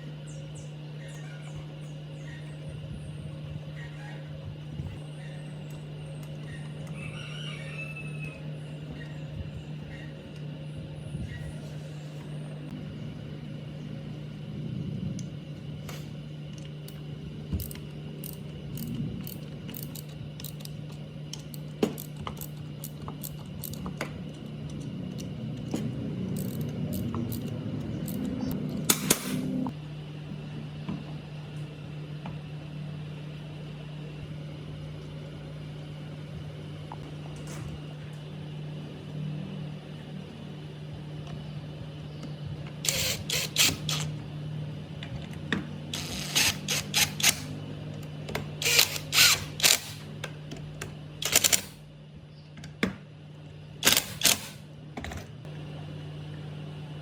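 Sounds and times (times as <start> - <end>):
steady low hum: 0.0 - 57.0
metal parts clicking and knocking: 17.6 - 28.3.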